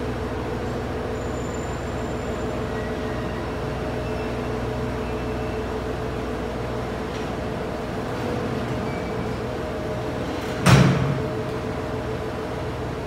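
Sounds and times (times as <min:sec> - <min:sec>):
diesel railcar idling hum: 0:00.0 - 0:13.0
freight train rolling to a stop: 0:00.0 - 0:13.0
faint high squeals: 0:01.1 - 0:05.8.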